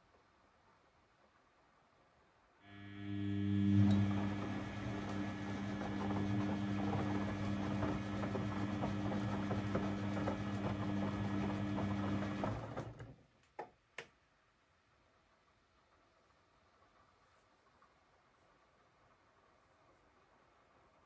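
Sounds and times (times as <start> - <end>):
washing machine humming: 2.7 - 13.2.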